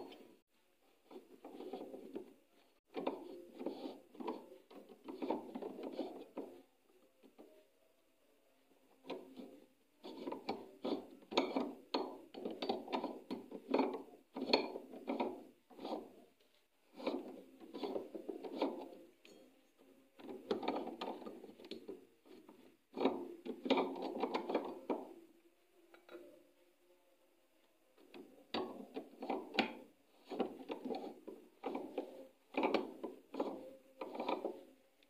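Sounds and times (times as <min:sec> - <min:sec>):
scraping and rubbing on metal: 0:00.0 - 0:06.7, 0:09.0 - 0:19.6, 0:28.0 - 0:34.8.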